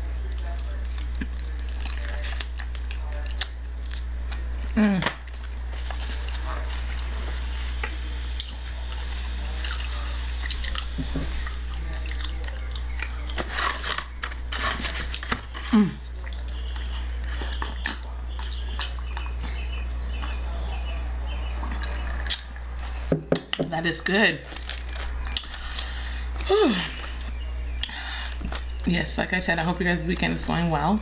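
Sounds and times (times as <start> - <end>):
chewing and lip-smacking: 0.0 - 4.5, 5.2 - 13.4, 16.2 - 20.4, 21.6 - 23.6, 24.6 - 28.9
steady low hum: 0.0 - 31.0
falling hum-like vocal sound: 25.8 - 27.2.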